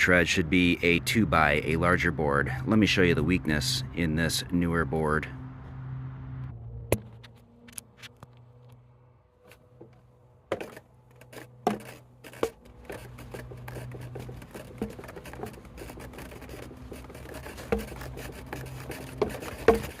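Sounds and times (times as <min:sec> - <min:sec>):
wooden stair tread scraping: 0:09.8 - 0:20.0
sharp knocks on wood: 0:18.8 - 0:20.0.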